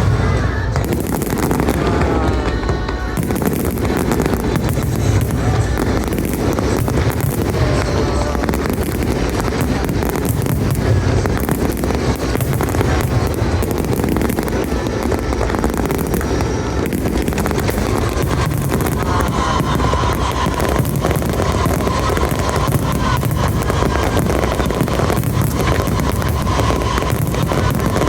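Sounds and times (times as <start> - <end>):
low rumble: 0.0 - 13.9
fireworks bursting and crackling: 0.0 - 28.0
music: 0.0 - 28.0.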